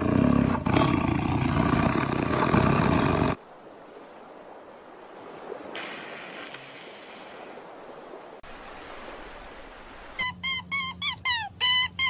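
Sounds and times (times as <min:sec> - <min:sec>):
sea water and surf: 0:00.0 - 0:12.0.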